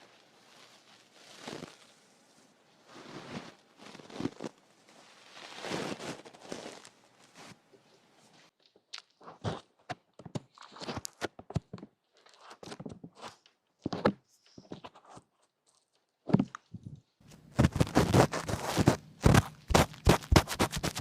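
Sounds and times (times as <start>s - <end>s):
crackling scratches: 0.0s - 13.5s, 17.3s - 21.0s.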